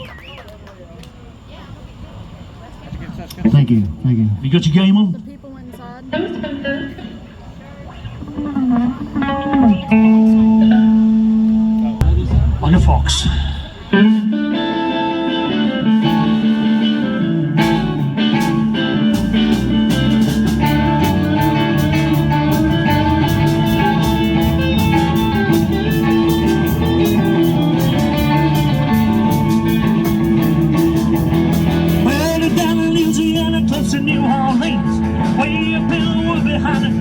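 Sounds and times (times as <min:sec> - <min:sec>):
electric guitar: 0:05.2 - 0:37.0
rockabilly band playing: 0:08.2 - 0:37.0
drums steady beat: 0:12.0 - 0:14.3, 0:17.6 - 0:37.0.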